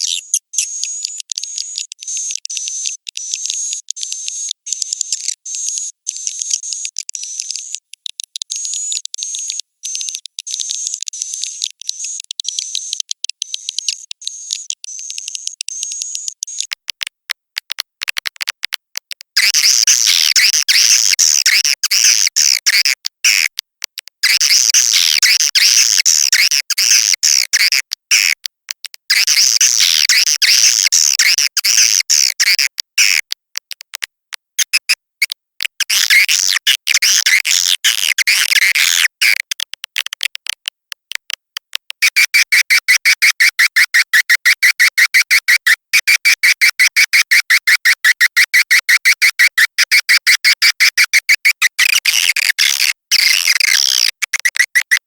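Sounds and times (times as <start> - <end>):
rapid clicks: 0.6 - 19.4, 30.9 - 55.0.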